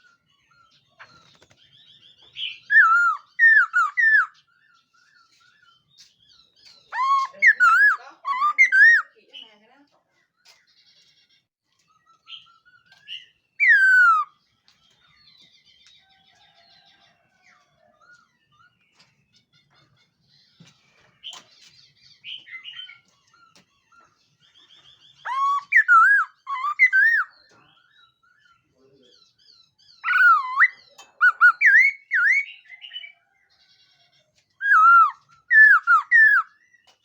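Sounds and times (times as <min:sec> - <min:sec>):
bird singing whistled phrases: 0:02.4 - 0:04.4, 0:06.9 - 0:09.2, 0:13.6 - 0:14.4, 0:25.2 - 0:27.5, 0:30.0 - 0:33.1, 0:34.6 - 0:36.6.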